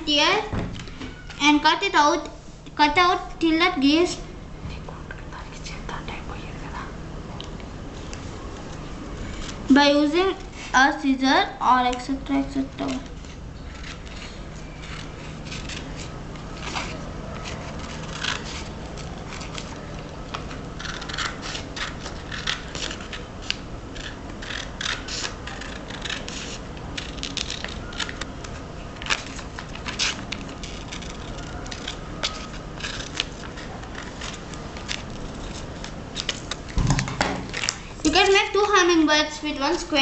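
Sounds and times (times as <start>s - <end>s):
scissors snipping paper: 11.9s - 36.8s.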